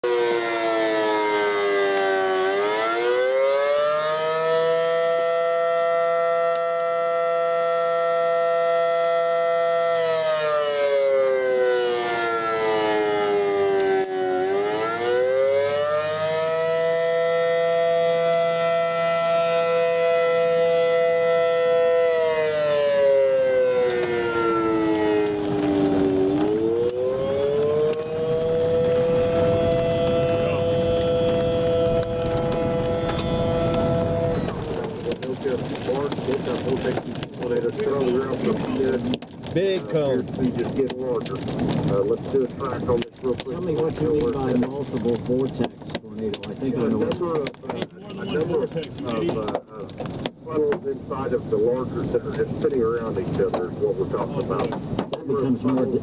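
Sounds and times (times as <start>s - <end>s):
warning siren wailing: 0.0s - 38.8s.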